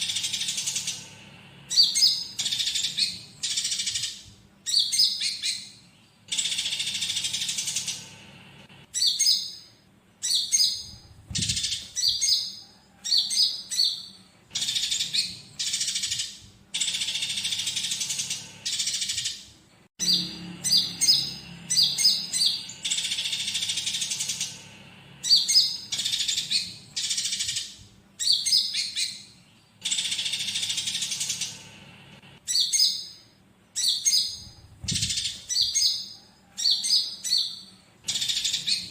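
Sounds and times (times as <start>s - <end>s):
bird singing: 0.0s - 8.2s, 8.9s - 31.8s, 32.4s - 38.9s
sparrows chattering and chirping: 0.0s - 38.9s.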